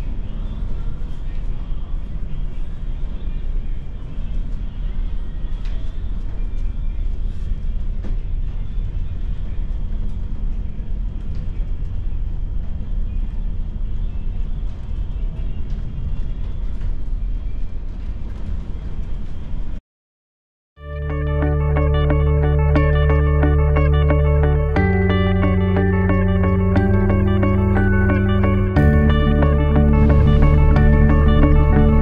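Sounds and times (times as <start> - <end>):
engine running: 20.9 - 32.0.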